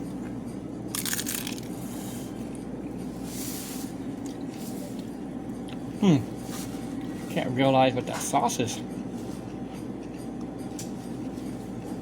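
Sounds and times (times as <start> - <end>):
low background hum: 0.0 - 12.0
chips crunching while chewed: 0.9 - 1.8.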